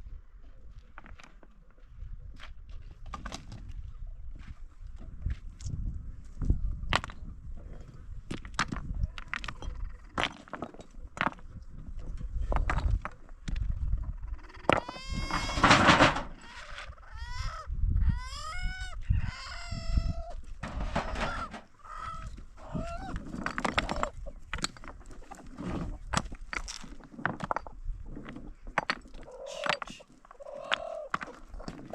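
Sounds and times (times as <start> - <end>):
poultry calling: 14.1 - 23.2, 29.2 - 31.7
knocks and clatter: 14.7 - 16.4, 20.6 - 21.7.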